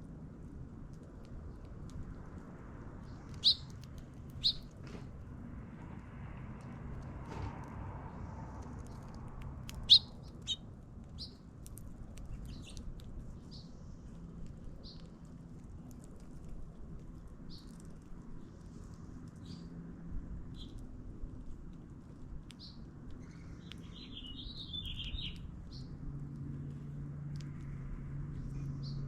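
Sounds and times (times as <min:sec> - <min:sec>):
low background rumble: 0:00.0 - 0:29.0
small birds chirping: 0:02.8 - 0:04.8, 0:08.8 - 0:19.8, 0:20.4 - 0:21.0, 0:22.0 - 0:29.0.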